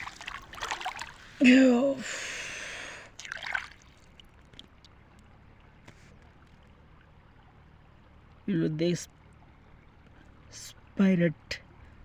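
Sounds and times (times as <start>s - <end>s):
splashing river water: 0.0s - 8.4s
faint water hiss: 5.6s - 7.6s.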